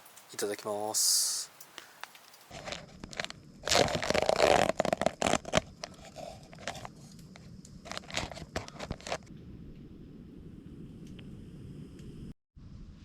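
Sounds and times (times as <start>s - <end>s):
light crackles and clicks: 1.5s - 9.9s
coffee packaging tearing and crinkling: 2.5s - 9.3s.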